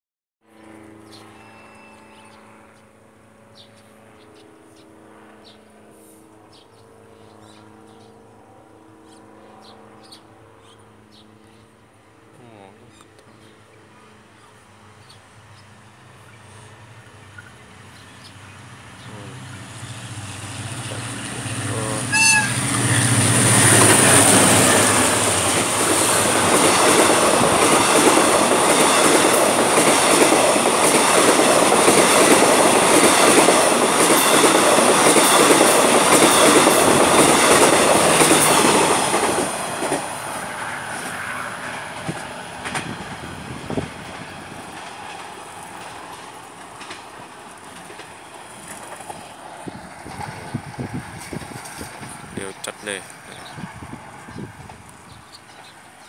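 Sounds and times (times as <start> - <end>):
locomotive engine drone: 0.5 - 56.0
train horn: 1.1 - 2.7, 21.6 - 24.8
rush of passing carriages: 16.0 - 56.0
wheels clattering over rail joints: 44.1 - 50.4.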